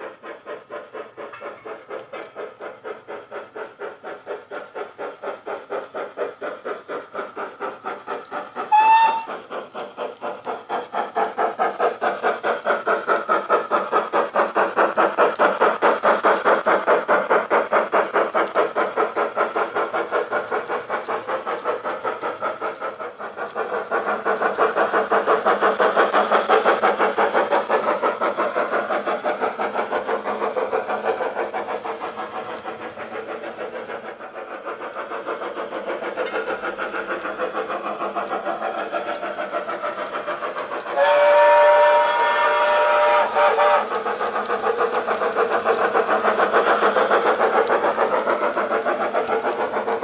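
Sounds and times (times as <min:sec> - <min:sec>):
model locomotive steam chuffing: 0:00.0 - 0:50.0
multi-tone steam whistle: 0:08.6 - 0:09.5, 0:40.9 - 0:43.9.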